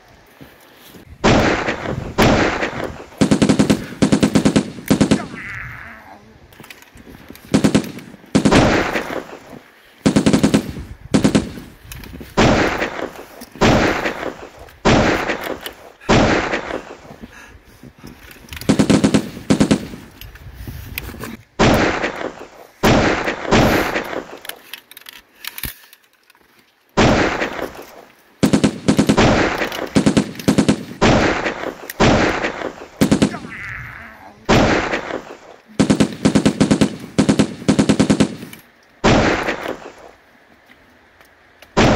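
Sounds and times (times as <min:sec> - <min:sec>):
automatic gunfire bursts: 0:01.2 - 0:05.4, 0:07.5 - 0:11.7, 0:18.7 - 0:20.0, 0:28.4 - 0:33.6, 0:34.5 - 0:40.0.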